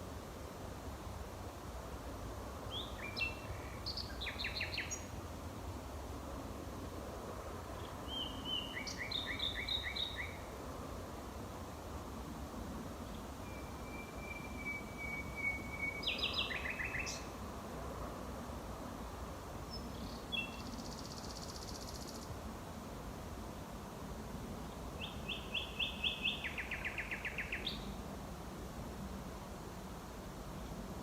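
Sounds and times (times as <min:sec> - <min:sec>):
nightingale singing: 0:02.7 - 0:05.1, 0:07.8 - 0:10.5, 0:13.0 - 0:17.3, 0:19.7 - 0:22.3, 0:25.0 - 0:27.9.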